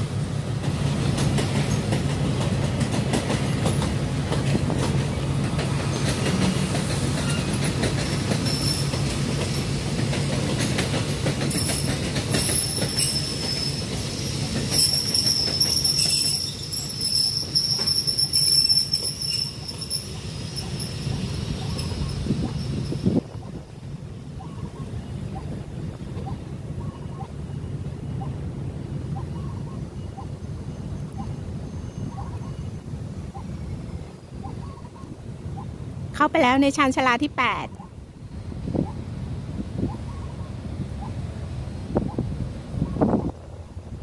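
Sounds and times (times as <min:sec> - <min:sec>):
train wheels clacking on rail joints: 0:00.6 - 0:23.5
high wheel squeal: 0:08.4 - 0:09.1, 0:11.5 - 0:23.3.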